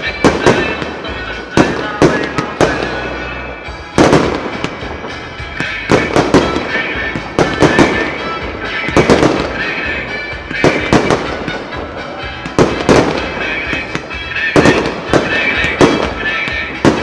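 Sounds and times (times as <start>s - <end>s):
music: 0.0s - 17.0s
firework shells bursting: 4.0s - 17.0s.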